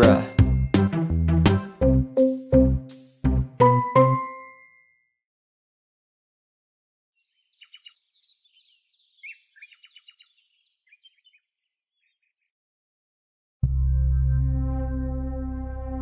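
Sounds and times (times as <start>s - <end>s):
music cue low note: 0.0s - 4.2s, 13.6s - 16.0s
small birds chirping: 7.1s - 12.6s.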